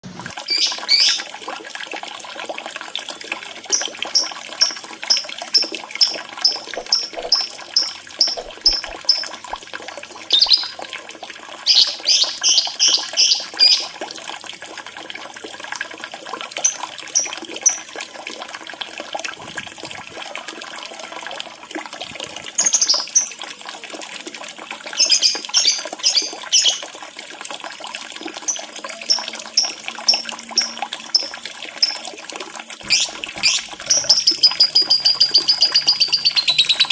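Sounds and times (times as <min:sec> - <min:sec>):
water trickling: 0:00.0 - 0:36.9
bird chirping: 0:00.5 - 0:01.2, 0:03.7 - 0:09.5, 0:10.3 - 0:10.8, 0:11.7 - 0:13.9, 0:32.8 - 0:36.9.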